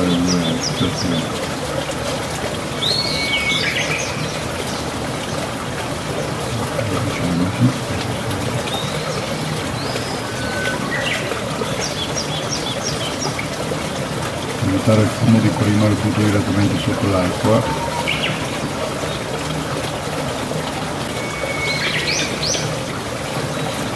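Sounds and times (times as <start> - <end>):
small birds chirping and whistling: 2.8 - 4.3, 8.7 - 13.1, 17.4 - 18.4, 21.2 - 22.7.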